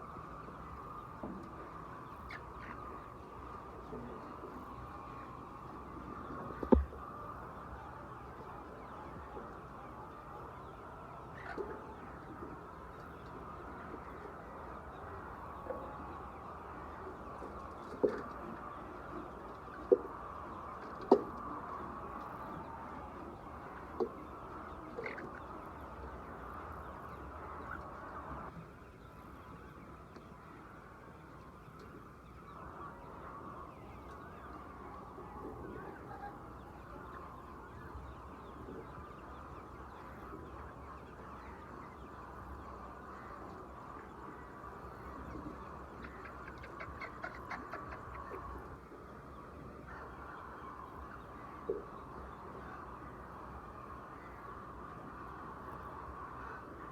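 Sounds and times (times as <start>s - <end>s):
hens clucking: 32.6s - 52.0s.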